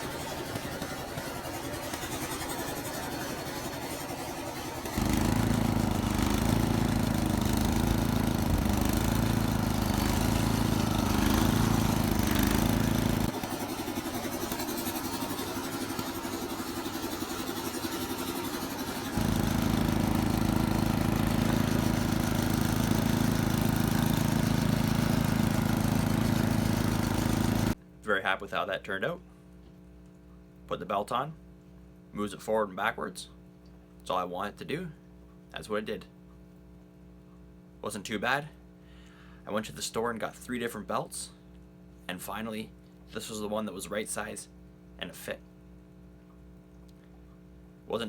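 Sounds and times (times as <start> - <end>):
snowblower engine running: 0.0 - 27.8.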